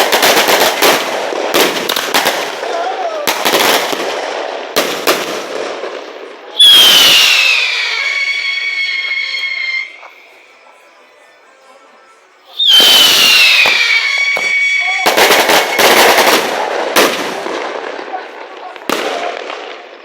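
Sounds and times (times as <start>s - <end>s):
firecracker bangs and crackling: 0.0s - 9.3s, 12.6s - 20.0s
whistling firework: 0.0s - 10.6s, 12.5s - 20.0s.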